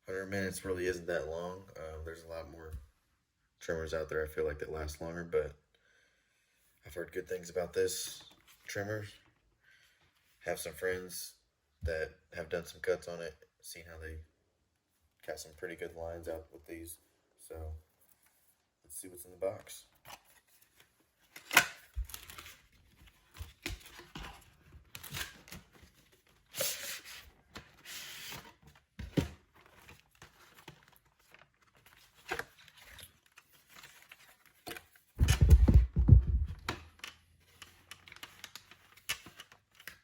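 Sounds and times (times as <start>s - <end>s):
cardboard and plastic crinkling: 20.1s - 36.7s
low rumbling handling noise: 35.2s - 36.7s.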